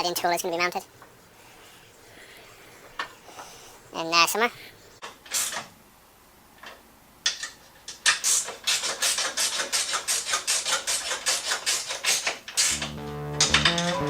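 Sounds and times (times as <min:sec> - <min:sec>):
hand file rasping on metal: 0:08.2 - 0:12.2.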